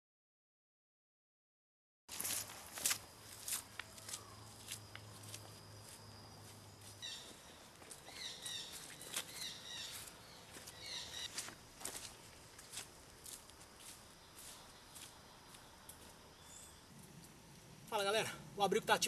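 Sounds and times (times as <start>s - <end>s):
birds calling: 3.8s - 12.1s
bird chirping phrases: 3.9s - 11.5s, 14.1s - 16.9s.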